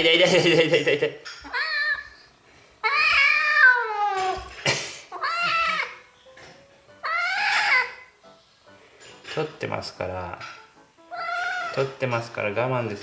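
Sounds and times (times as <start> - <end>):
kitten meowing loudly: 11.1 - 11.8.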